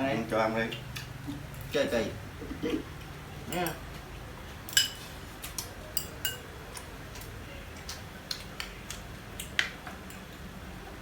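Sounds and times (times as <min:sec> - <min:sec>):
spoons clinking against dishes: 0:03.5 - 0:03.8, 0:04.7 - 0:05.1, 0:05.9 - 0:06.5.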